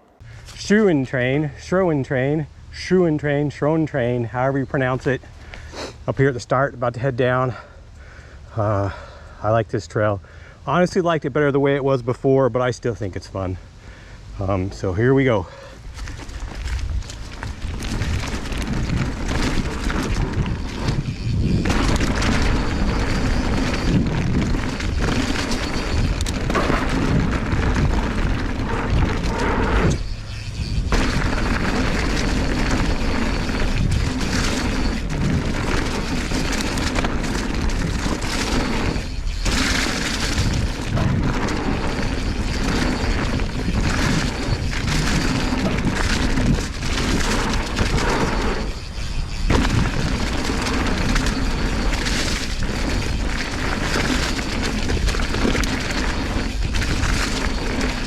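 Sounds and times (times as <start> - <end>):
bike rattling over dirt: 0.2 - 7.8, 14.4 - 58.0
wind buffeting microphone: 15.8 - 58.0.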